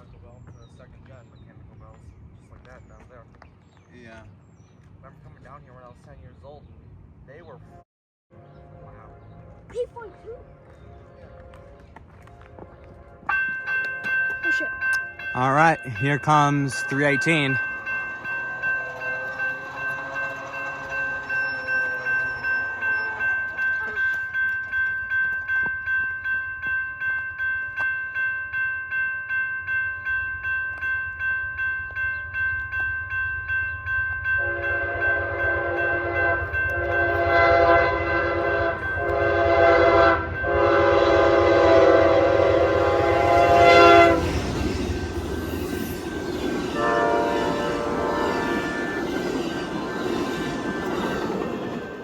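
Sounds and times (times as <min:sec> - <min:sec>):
train wheels rushing by: 0:10.6 - 0:25.8, 0:33.2 - 0:52.0
crossing bell ringing: 0:13.2 - 0:52.0
train horn blasts: 0:17.2 - 0:23.8, 0:34.4 - 0:44.5, 0:46.8 - 0:49.2.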